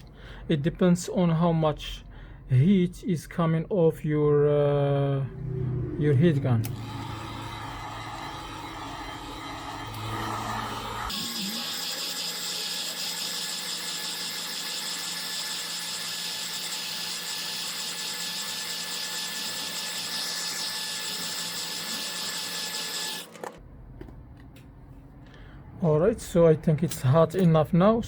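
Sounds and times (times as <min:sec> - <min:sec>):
heat gun blowing air: 0:06.6 - 0:13.6.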